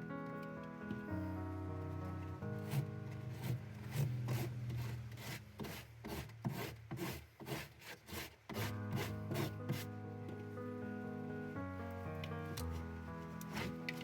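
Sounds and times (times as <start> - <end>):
background music: 0.0 - 5.4, 8.5 - 14.0
sandpaper rubbing strokes: 2.6 - 9.9.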